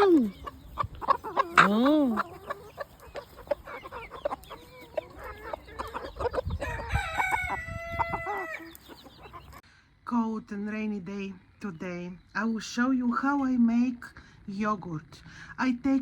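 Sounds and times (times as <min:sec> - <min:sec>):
chickens clucking: 0:00.0 - 0:09.6
rooster crowing: 0:06.5 - 0:08.8.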